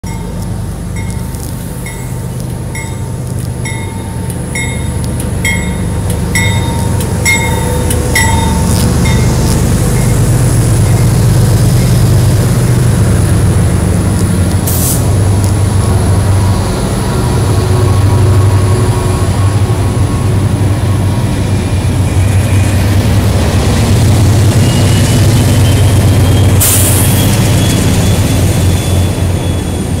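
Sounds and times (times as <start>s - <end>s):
locomotive bell ringing: 0.0s - 12.4s
diesel locomotives rumbling past: 0.0s - 30.0s
train wheels squealing: 20.8s - 30.0s.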